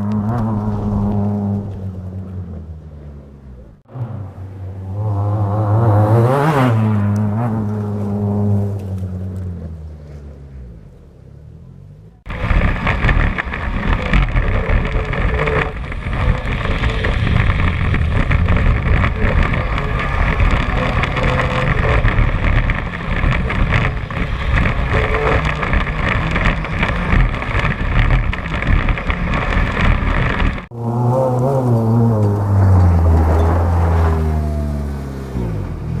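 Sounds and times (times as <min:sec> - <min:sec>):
rally car engine: 0:00.0 - 0:36.0
wind and road rushing noise: 0:00.0 - 0:36.0.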